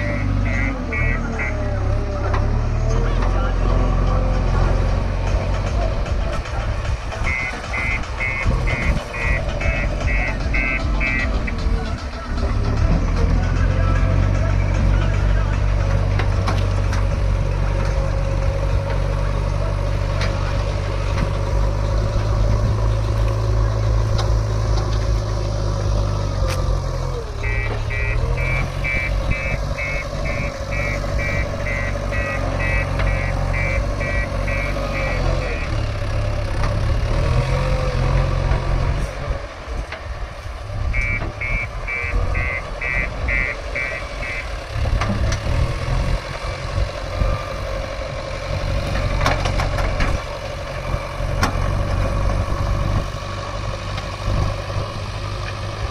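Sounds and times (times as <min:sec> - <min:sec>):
reversing alarm beeping: 0:00.0 - 0:01.6, 0:07.2 - 0:11.6, 0:27.4 - 0:35.8, 0:40.9 - 0:44.6
diesel engine running: 0:00.0 - 0:55.9.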